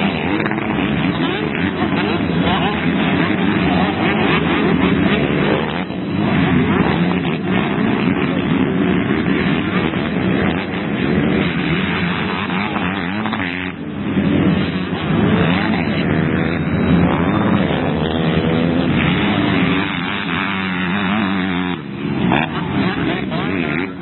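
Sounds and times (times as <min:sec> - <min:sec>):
motocross bikes racing: 0:00.0 - 0:24.0.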